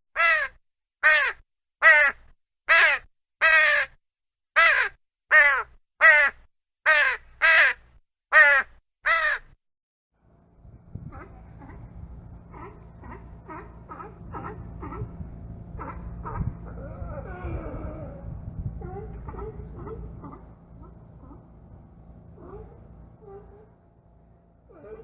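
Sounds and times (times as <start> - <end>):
bird calling: 10.6 - 25.0.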